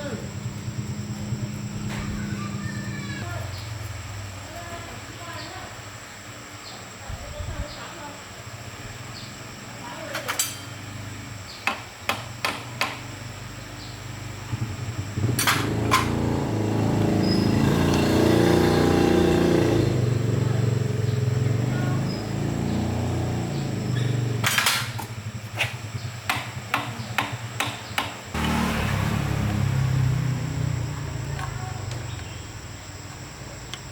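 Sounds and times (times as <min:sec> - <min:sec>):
motorcycle engine revving: 0:00.0 - 0:04.9, 0:08.9 - 0:11.6, 0:13.1 - 0:33.9
sharp knocks: 0:11.6 - 0:13.0, 0:26.3 - 0:28.6.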